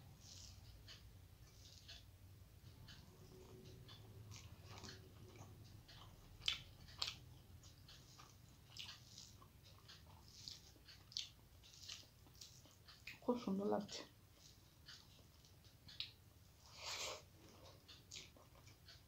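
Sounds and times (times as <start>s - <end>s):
chewing and mouth smacks: 3.4s - 13.2s, 17.0s - 19.0s.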